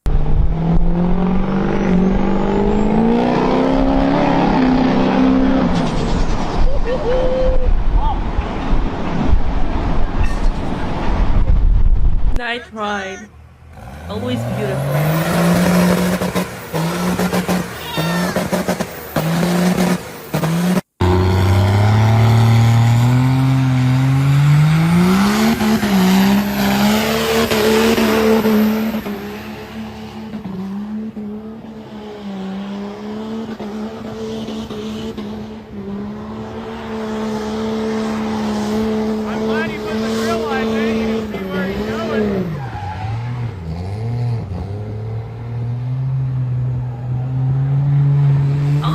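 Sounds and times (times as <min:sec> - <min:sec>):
wind buffeting microphone: 0:06.4 - 0:12.4
pickup truck engine revving: 0:13.6 - 0:31.6.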